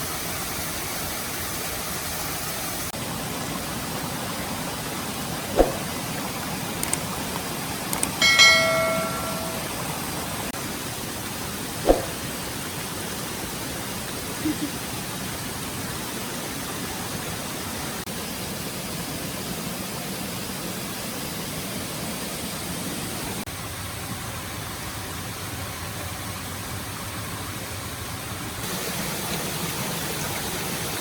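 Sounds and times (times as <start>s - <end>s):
forest stream rushing: 0.0s - 23.4s, 28.6s - 31.0s
sharp knocks: 11.9s - 12.2s.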